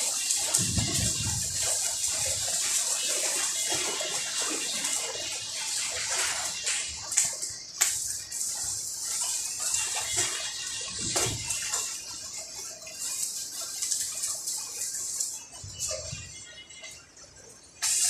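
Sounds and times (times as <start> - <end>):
welding arc crackling and hissing: 0.0 - 16.6, 17.8 - 18.0
sharp welding pops: 7.1 - 8.4, 17.8 - 18.0.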